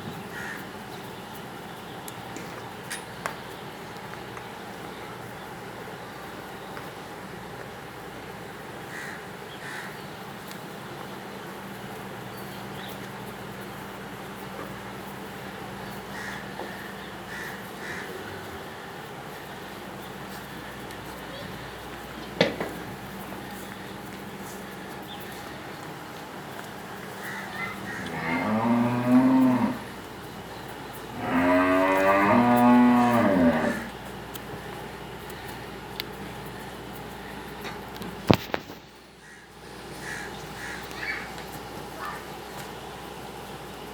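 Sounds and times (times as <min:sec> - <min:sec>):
background noise with low hum: 0:00.0 - 0:43.9
cow mooing: 0:27.7 - 0:30.0, 0:31.1 - 0:34.0.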